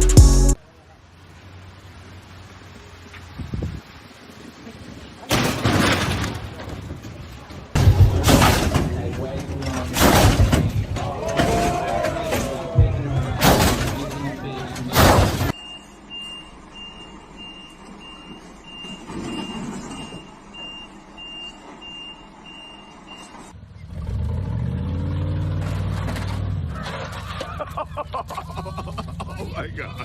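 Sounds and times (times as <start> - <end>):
vehicle engine: 0.0 - 30.0
reversing alarm beeping: 15.5 - 23.5.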